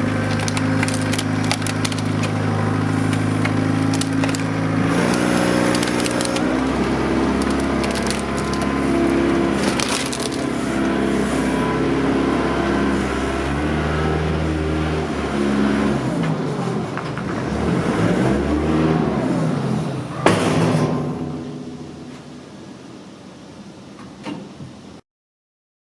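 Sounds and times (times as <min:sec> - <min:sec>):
sharp crack: 0:00.0 - 0:10.5
tractor engine revving: 0:00.0 - 0:20.0.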